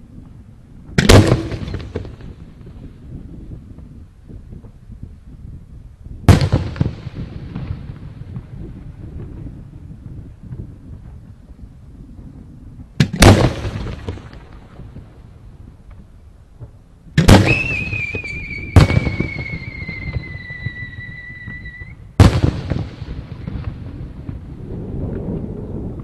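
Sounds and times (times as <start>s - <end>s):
rumble and crackle: 0.0s - 26.0s
firework shells booming: 1.0s - 2.8s, 6.3s - 9.6s, 13.0s - 15.1s, 16.6s - 24.5s
high firework whistle: 17.3s - 22.1s.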